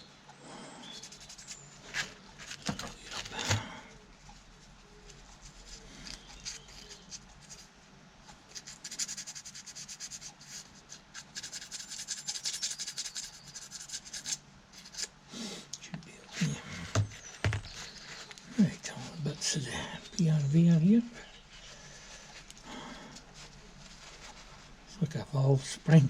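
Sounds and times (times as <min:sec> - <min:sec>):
fast scratchy rubbing: 0:05.1 - 0:07.7, 0:08.5 - 0:15.1.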